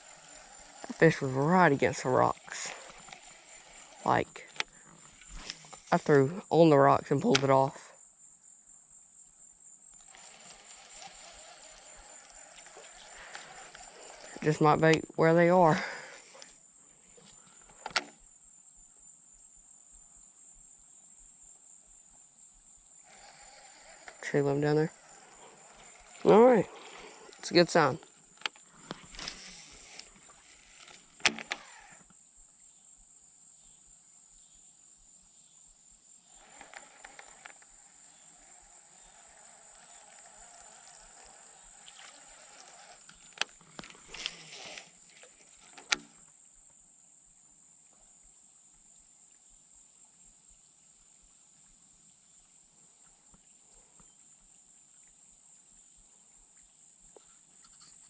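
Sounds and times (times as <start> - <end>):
high-pitched insect buzz: 0.0 - 7.4, 8.0 - 17.7, 22.4 - 32.8, 35.4 - 46.4.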